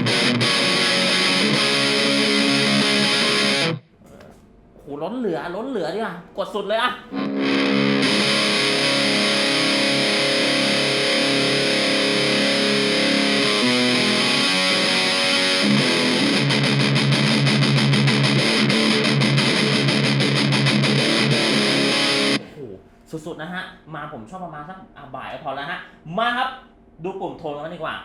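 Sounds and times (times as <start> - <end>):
distorted electric guitar: 0.0 - 3.8, 7.1 - 22.4.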